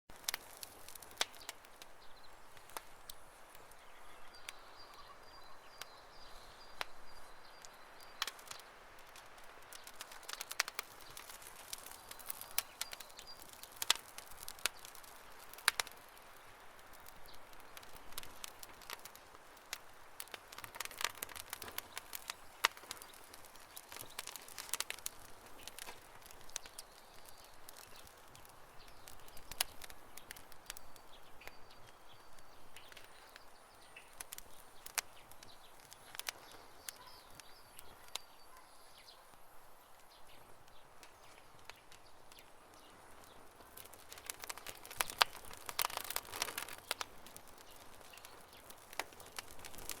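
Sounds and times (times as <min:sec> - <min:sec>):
campfire crackling and popping: 0:00.1 - 0:50.0
soft bird chirps: 0:00.3 - 0:19.2, 0:20.2 - 0:50.0.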